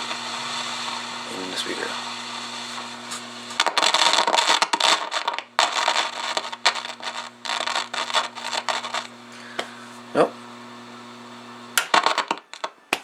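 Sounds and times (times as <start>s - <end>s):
radio speaker low hum: 0.0s - 12.9s
scratchy radio crackling: 0.0s - 13.0s.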